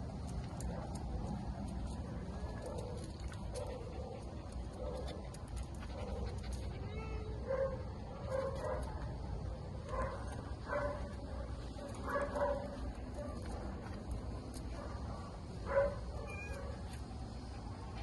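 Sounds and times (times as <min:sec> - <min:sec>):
dog whimpering: 0:06.7 - 0:07.5.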